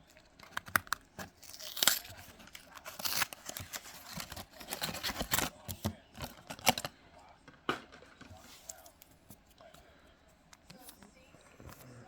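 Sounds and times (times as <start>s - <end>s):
card pack wrapper rustling: 0.0s - 6.9s.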